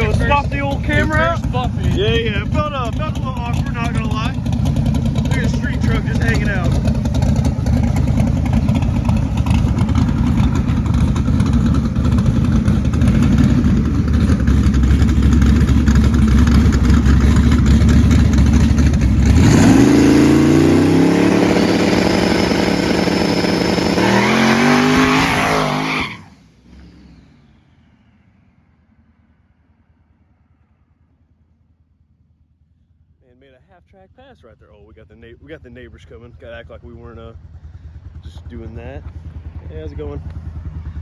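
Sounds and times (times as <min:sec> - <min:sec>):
truck engine revving: 0:00.0 - 0:27.6.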